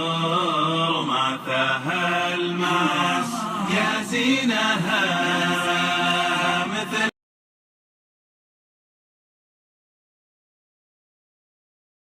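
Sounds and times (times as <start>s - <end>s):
low vocal drone: 0.0s - 7.1s
voices chanting long notes: 0.0s - 7.1s.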